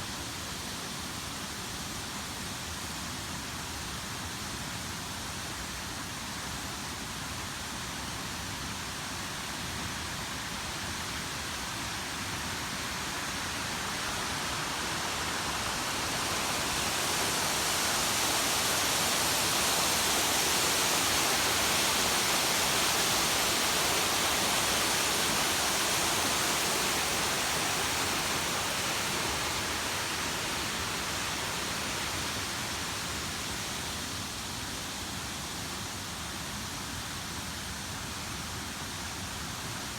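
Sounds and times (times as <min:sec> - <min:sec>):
waterfall rushing: 0:13.5 - 0:34.9.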